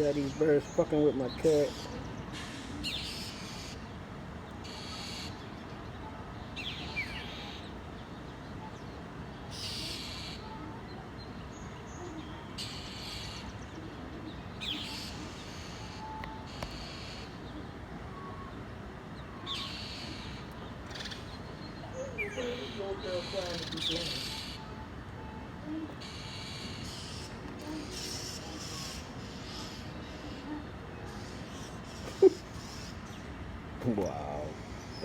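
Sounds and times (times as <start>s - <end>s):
songbirds harsh alarm calls: 0.0s - 8.4s, 9.5s - 10.6s, 11.5s - 18.4s, 19.0s - 24.8s, 25.9s - 35.0s
steady background hiss: 0.0s - 35.0s.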